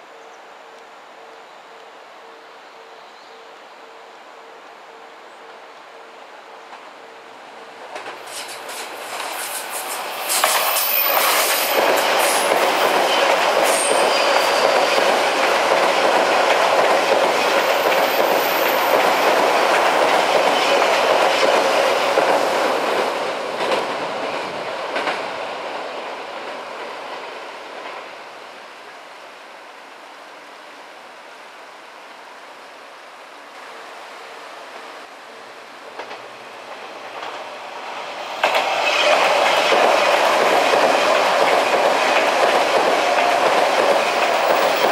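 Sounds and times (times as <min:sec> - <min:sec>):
loud train sound: 0:03.8 - 0:44.9
train wheels clattering over rail joints: 0:07.9 - 0:24.0, 0:38.4 - 0:44.9.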